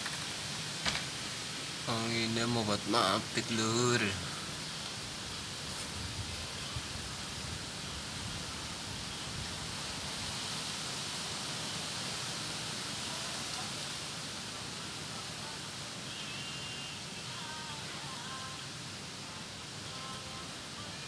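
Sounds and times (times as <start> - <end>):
leaves rustling in wind: 0.0 - 21.0
wind buffeting microphone: 5.1 - 10.2.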